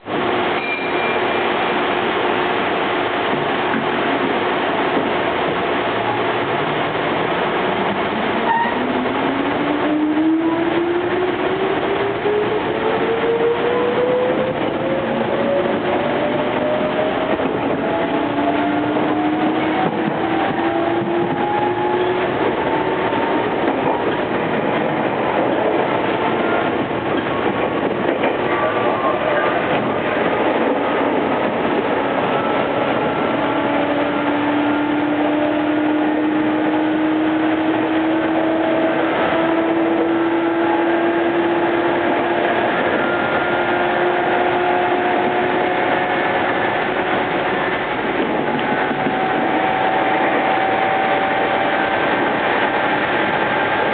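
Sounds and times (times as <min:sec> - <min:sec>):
train running rumble: 0:00.0 - 0:53.9.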